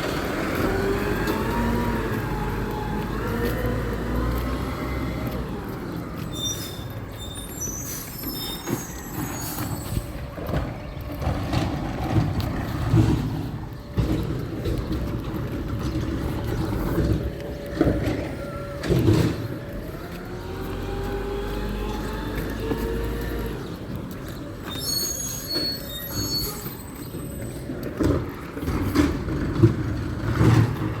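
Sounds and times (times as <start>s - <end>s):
garbage truck engine: 0.0s - 31.0s
air brakes squealing: 6.2s - 10.3s, 24.6s - 27.9s.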